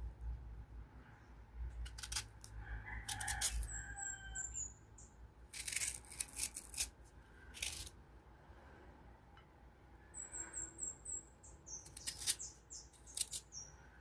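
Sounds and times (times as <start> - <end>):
knife cutting crunchy mango: 1.8 - 3.7, 5.5 - 7.0
bird chirping: 3.6 - 5.2, 10.0 - 14.0.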